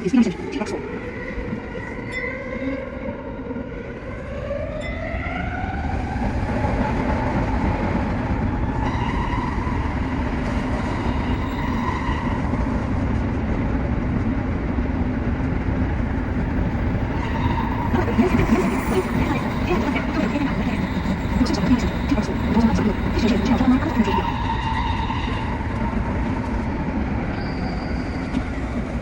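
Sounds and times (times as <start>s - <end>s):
train wheels rumbling on rails: 5.8s - 29.0s
electric train motor whine: 15.6s - 29.0s.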